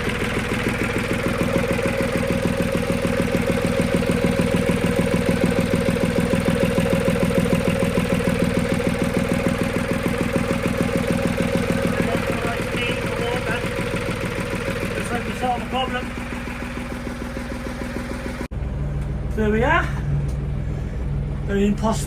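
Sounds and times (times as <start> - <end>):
boat engine idling: 0.0 - 22.0.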